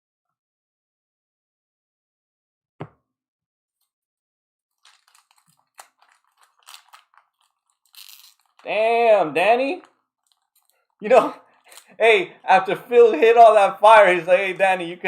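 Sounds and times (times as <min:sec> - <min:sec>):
cards rustling: 0:04.8 - 0:08.8, 0:09.6 - 0:12.0.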